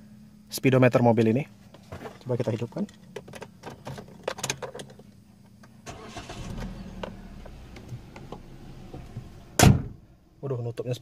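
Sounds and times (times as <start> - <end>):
car engine starting and idling: 5.6 - 10.3.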